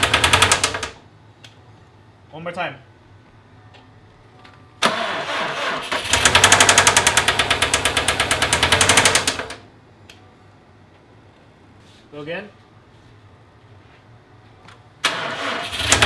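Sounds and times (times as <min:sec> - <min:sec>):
engine cranking and knocking: 0:04.9 - 0:09.6, 0:15.1 - 0:16.0.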